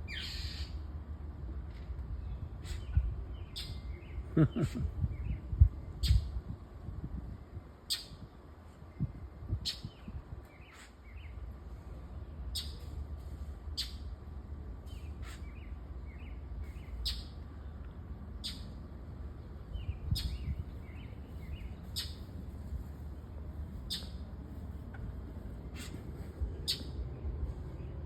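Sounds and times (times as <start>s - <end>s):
soft bird chirps: 2.2s - 4.4s, 14.8s - 18.8s, 19.5s - 25.0s
bird scolding calls: 25.7s - 27.0s.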